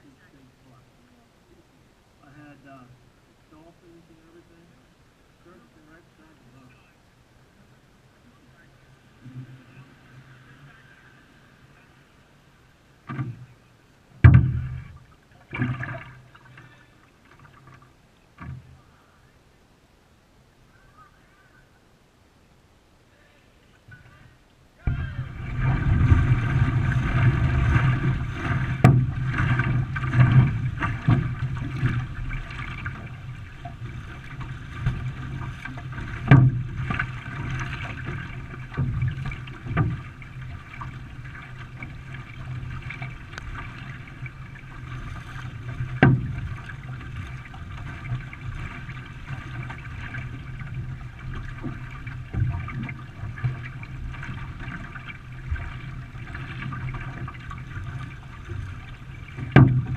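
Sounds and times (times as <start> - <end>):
paddles splashing through water: 8.6 - 19.2, 23.5 - 59.9
paddle shafts knocking hull: 14.2 - 16.2, 24.9 - 59.9.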